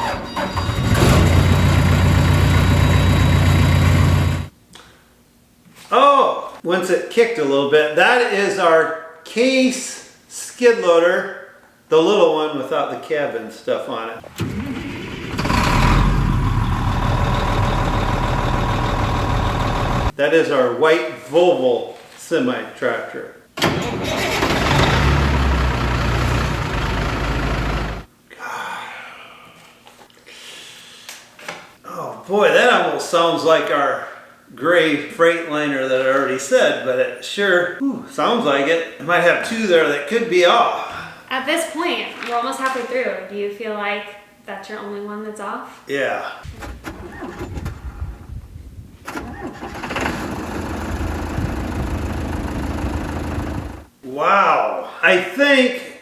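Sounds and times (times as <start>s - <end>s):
truck diesel engine droning: 0.3s - 4.5s, 14.2s - 20.1s, 23.6s - 28.1s, 49.4s - 53.9s.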